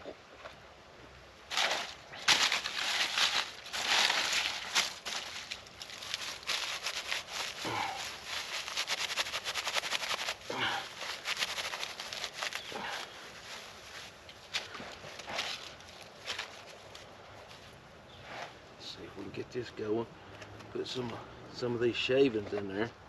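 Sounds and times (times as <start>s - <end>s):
dry sticks breaking: 1.5s - 13.0s.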